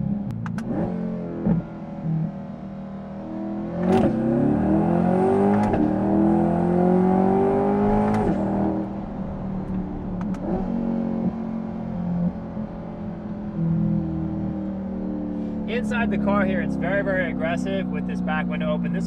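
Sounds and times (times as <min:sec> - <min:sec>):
car engine revving: 0:00.0 - 0:19.0
gear shift crack: 0:00.2 - 0:01.8, 0:03.6 - 0:06.3, 0:07.2 - 0:15.7
exhaust pops: 0:00.3 - 0:00.9, 0:03.8 - 0:04.3, 0:05.5 - 0:05.9, 0:07.8 - 0:13.6.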